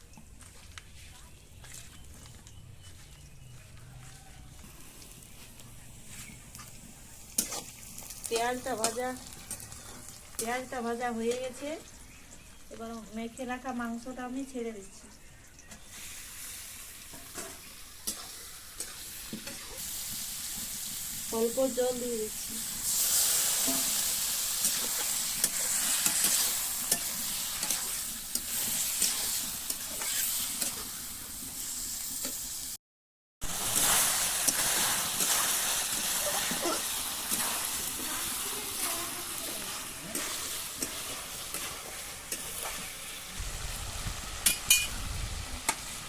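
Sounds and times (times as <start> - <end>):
spatula stirring and scraping: 2.9 - 10.7, 15.9 - 31.6, 33.5 - 43.4
chicken sizzling in oil: 3.9 - 14.9, 15.6 - 32.8, 33.4 - 46.0.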